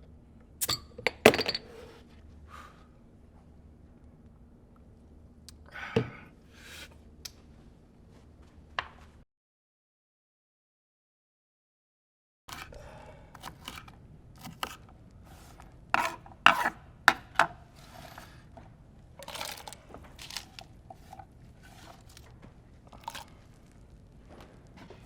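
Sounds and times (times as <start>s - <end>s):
objects being handled: 16.0s - 18.3s.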